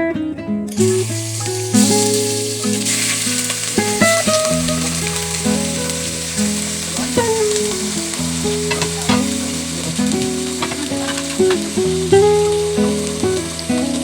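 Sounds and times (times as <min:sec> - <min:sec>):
background music with plucked melody: 0:00.0 - 0:14.0
food sizzling in a pan: 0:00.7 - 0:14.0
stirring clicks and scrapes: 0:00.8 - 0:14.0.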